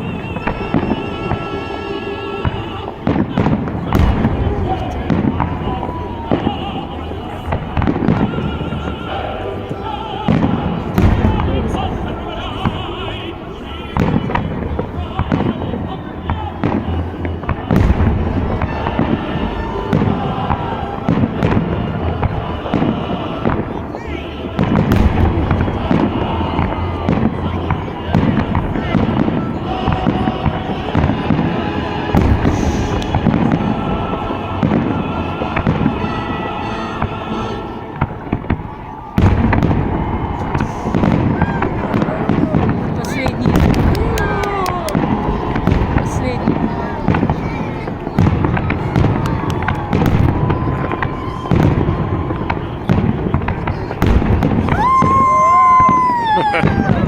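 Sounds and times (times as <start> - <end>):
fireworks booming and crackling: 0.0 - 57.0
firework shells booming: 2.4 - 6.6, 38.0 - 47.4.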